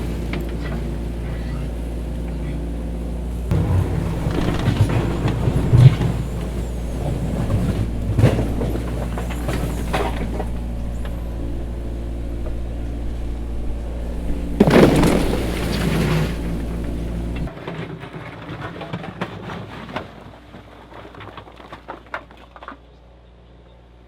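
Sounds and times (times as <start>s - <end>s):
heavy diesel engine rumbling: 0.0s - 17.5s.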